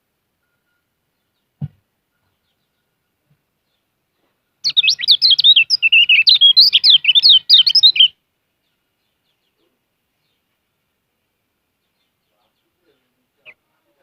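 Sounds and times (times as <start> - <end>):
bird twittering warble: 4.6 - 8.1.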